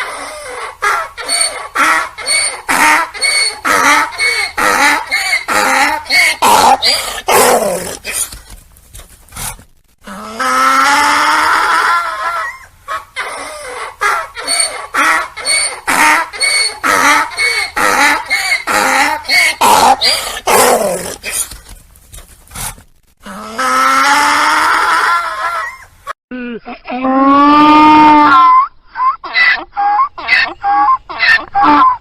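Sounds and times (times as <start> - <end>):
donkey braying: 0.0 - 8.5, 10.1 - 21.6, 27.0 - 32.0.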